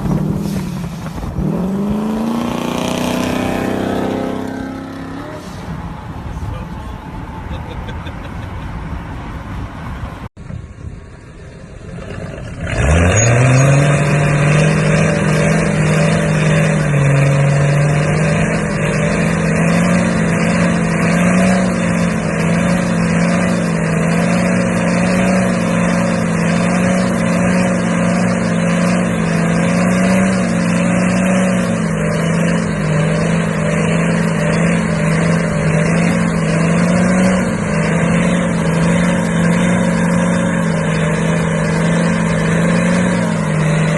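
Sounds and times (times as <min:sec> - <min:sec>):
truck engine droning: 0:00.0 - 0:43.9.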